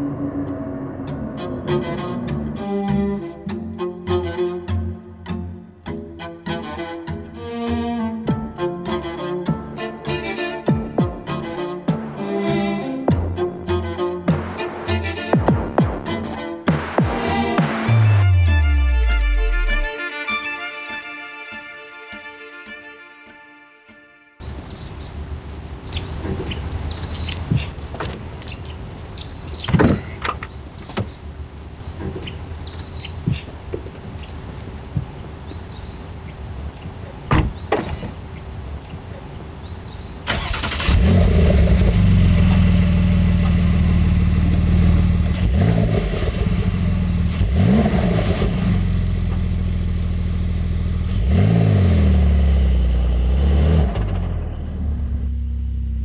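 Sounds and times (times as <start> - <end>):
car engine starting and idling: 0.0 - 4.1, 11.9 - 19.9, 24.4 - 56.0
engine throttle blips: 0.0 - 4.2, 11.9 - 19.9, 24.4 - 56.0
thumps: 10.7 - 19.9, 29.6 - 31.3, 33.1 - 35.3, 36.8 - 39.3
birds chirping: 24.4 - 47.8.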